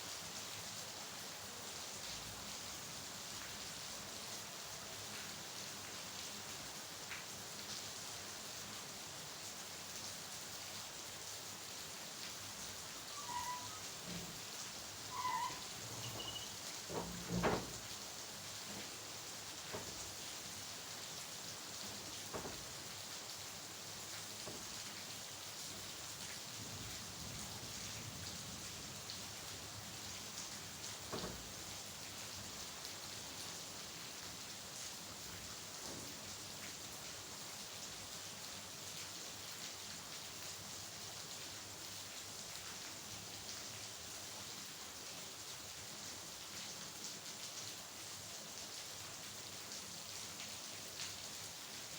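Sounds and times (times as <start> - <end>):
steady rain: 0.0 - 51.9.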